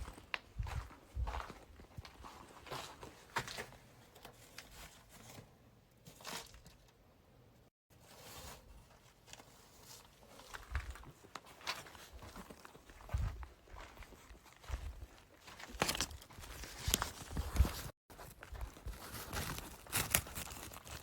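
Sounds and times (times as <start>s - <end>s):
crunching rustling footsteps: 0.0s - 3.9s, 9.9s - 21.0s.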